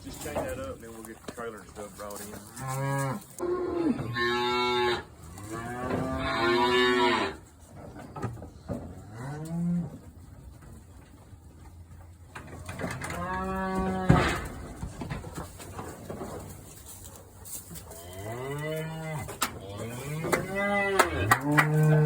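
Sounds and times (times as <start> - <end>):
cattle mooing: 2.6 - 7.4, 9.0 - 10.0, 13.0 - 14.5, 18.0 - 22.0.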